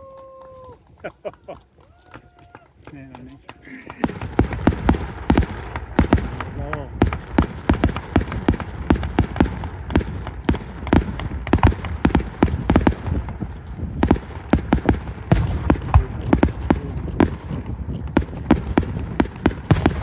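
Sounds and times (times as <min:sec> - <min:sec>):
fireworks bangs and crackles: 0:00.1 - 0:20.0
rumble of aerial shell bursts: 0:03.7 - 0:20.0.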